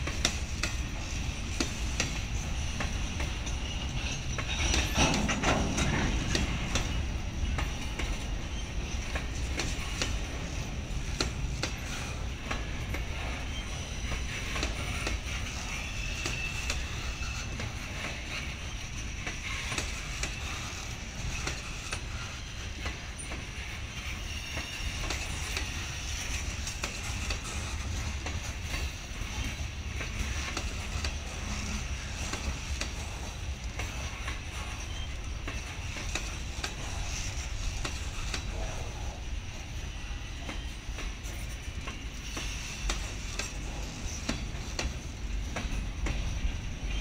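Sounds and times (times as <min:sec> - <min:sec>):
wheels clicking and clacking: 0:00.0 - 0:39.2
freight train rumble: 0:00.0 - 0:47.0
high wheel squeal: 0:13.2 - 0:18.9.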